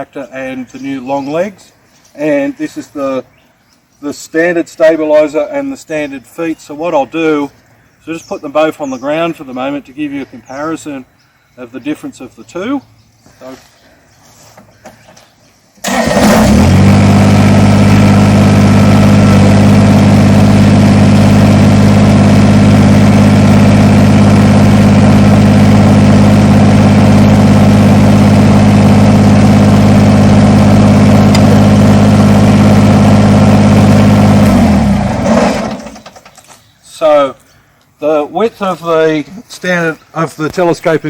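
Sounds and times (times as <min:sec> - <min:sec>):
diesel tractor engine running: 0:15.8 - 0:36.4.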